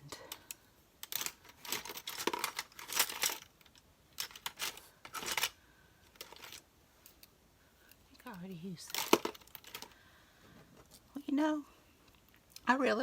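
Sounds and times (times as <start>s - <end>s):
paper rustling and crinkling: 4.2s - 6.6s.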